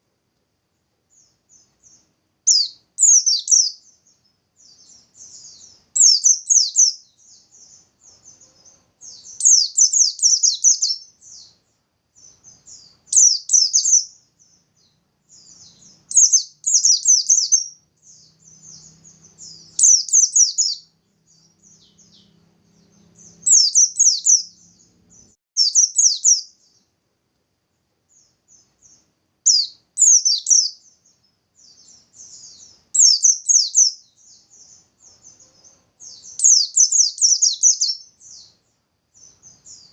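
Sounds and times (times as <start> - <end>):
bird twittering: 1.2 - 11.6, 12.2 - 26.8, 28.2 - 38.6.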